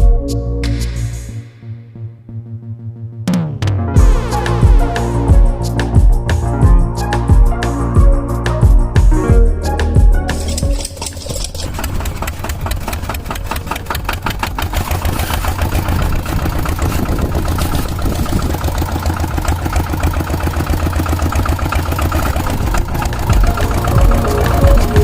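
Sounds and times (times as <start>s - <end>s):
small tractor engine chugging: 10.7s - 25.0s.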